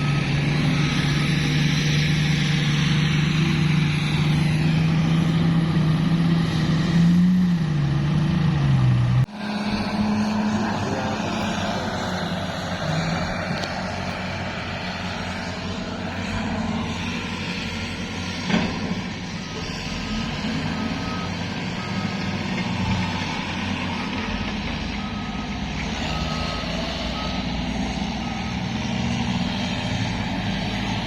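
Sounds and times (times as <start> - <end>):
reversing alarm beeping: 0.0 - 5.3, 19.6 - 30.6
heavy vehicle engine running: 0.0 - 31.0.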